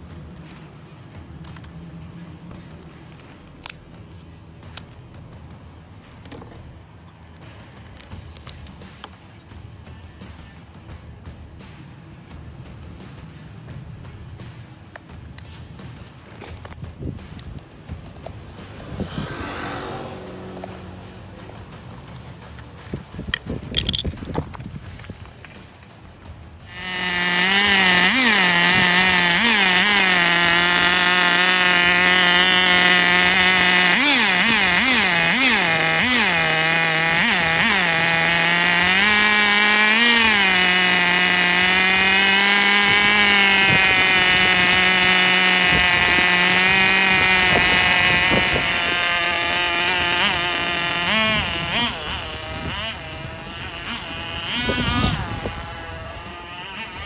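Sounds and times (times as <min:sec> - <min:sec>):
small engine revving: 0:17.9 - 0:26.0, 0:26.6 - 0:57.0.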